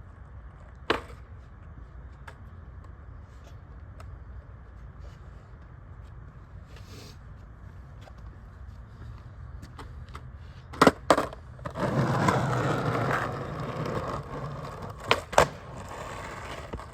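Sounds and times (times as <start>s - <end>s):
skateboard clack: 0.8s - 1.3s, 9.7s - 16.9s
skateboard scrape: 10.5s - 16.9s.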